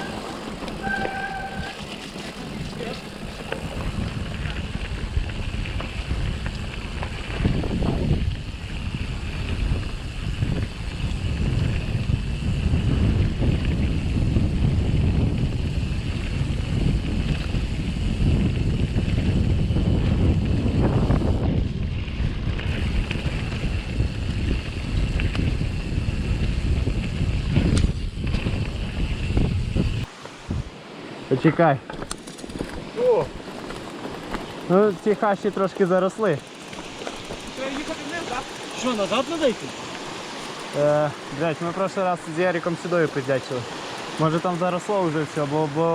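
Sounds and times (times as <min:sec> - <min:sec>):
tyres rumbling on ground: 0:00.0 - 0:07.8, 0:31.8 - 0:45.9
bike rattling ticks: 0:00.0 - 0:30.1, 0:31.9 - 0:45.9
wind on microphone: 0:00.0 - 0:30.8.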